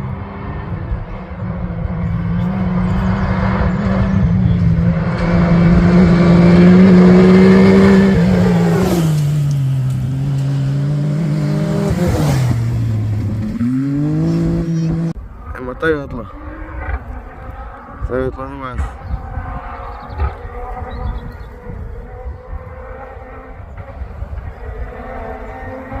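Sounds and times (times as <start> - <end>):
vehicle engine revving high: 0.0 - 15.2.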